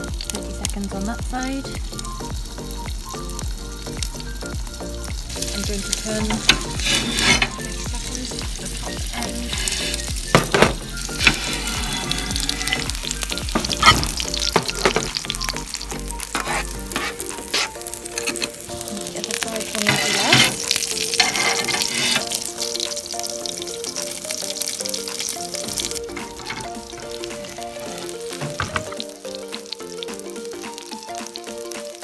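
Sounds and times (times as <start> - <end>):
burger patties sizzling: 0.0 - 32.0
fat spitting and popping: 6.4 - 18.7.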